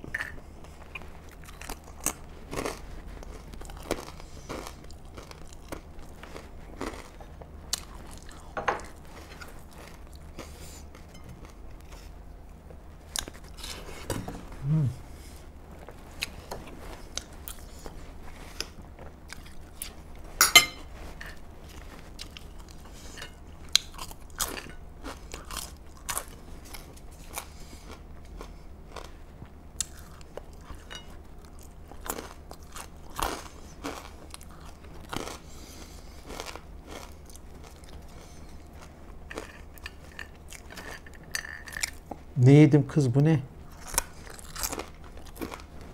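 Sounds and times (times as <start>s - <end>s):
chewing and crunching food: 0.0s - 42.4s, 43.6s - 45.9s.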